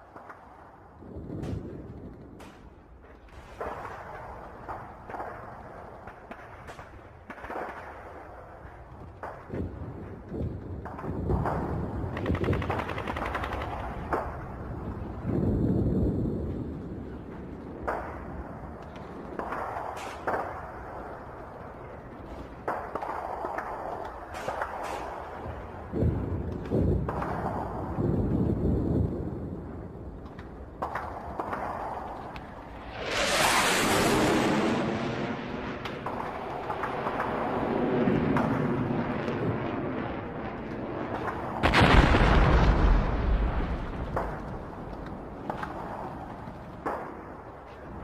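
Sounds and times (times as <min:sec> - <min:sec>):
continuous low rumble: 0:00.0 - 0:48.0
loud explosion: 0:32.8 - 0:36.1, 0:41.6 - 0:44.7
explosion bangs and thuds: 0:41.6 - 0:45.6.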